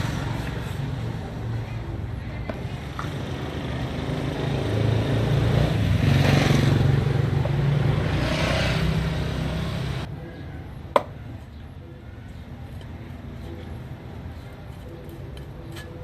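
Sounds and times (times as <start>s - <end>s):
vehicle engine humming: 0.0s - 10.1s.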